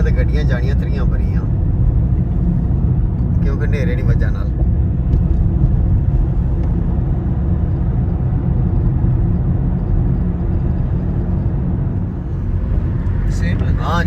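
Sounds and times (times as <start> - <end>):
diesel car engine rumble: 0.0 - 14.0.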